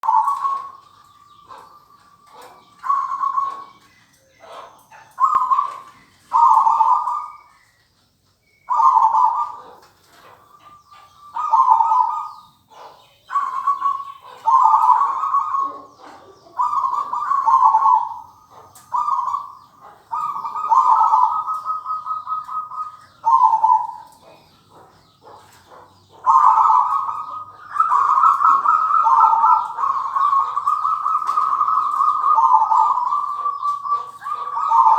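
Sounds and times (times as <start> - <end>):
dove cooing: 0.0 - 7.6, 8.6 - 34.9.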